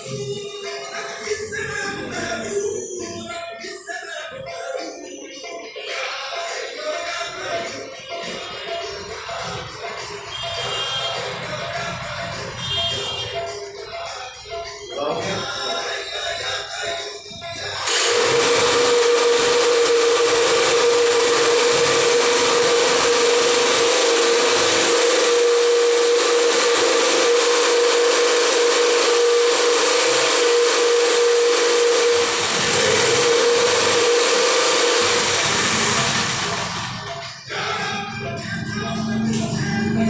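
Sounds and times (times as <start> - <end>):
machine whining: 6.6 - 40.0
loud hiss: 17.8 - 37.1.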